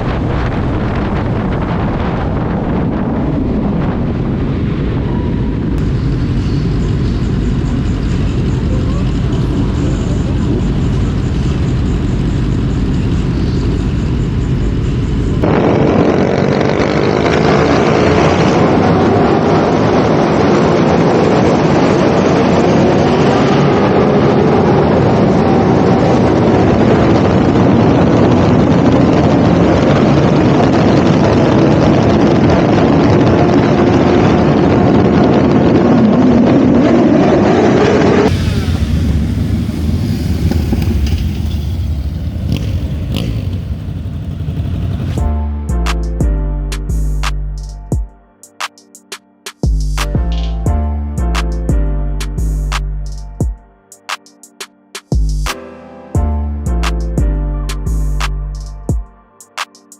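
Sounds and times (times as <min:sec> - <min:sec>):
motorcycle engine running: 0:38.3 - 0:45.3.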